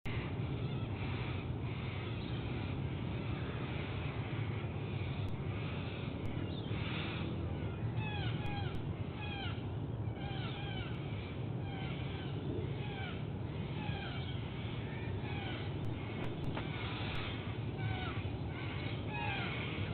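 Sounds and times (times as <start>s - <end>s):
low background rumble: 0.1s - 19.9s.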